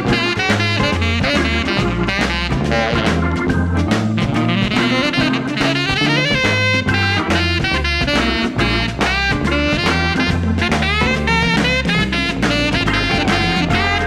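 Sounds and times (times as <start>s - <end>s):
swing jazz with horn lead: 0.0s - 14.0s.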